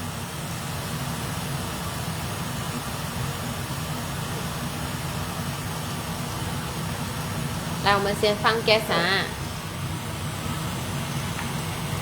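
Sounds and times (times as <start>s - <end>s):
fan humming and hissing: 0.0s - 12.0s.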